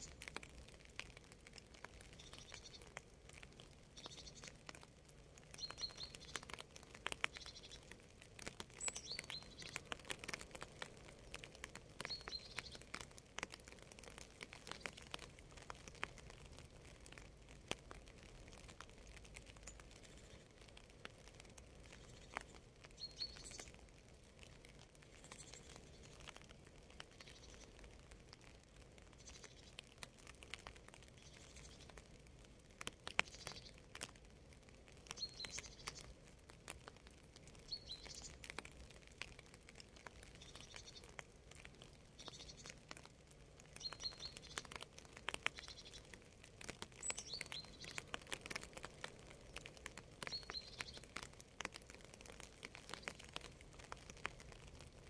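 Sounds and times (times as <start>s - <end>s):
faint rain: 0.0s - 55.0s
small bird chirping: 2.0s - 3.0s, 3.9s - 4.7s, 5.5s - 10.4s, 11.1s - 13.8s, 21.8s - 23.9s, 25.0s - 26.4s, 27.1s - 27.8s, 29.1s - 29.8s, 31.1s - 32.0s, 33.1s - 33.8s, 35.1s - 36.1s, 37.6s - 38.6s, 40.2s - 41.2s, 42.1s - 43.0s, 43.7s - 46.2s, 46.8s - 51.4s.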